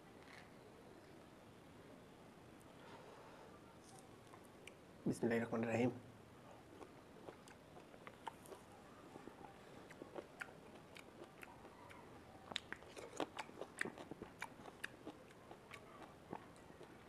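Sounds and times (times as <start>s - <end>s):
wet mouth chewing clicks: 6.8s - 8.7s, 9.3s - 17.0s.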